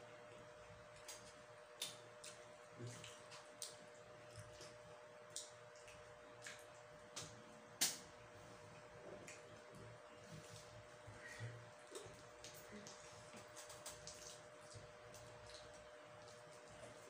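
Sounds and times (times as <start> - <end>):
faint steady hum: 0.0 - 17.0
chewing clicks and mouth smacks: 0.9 - 6.9.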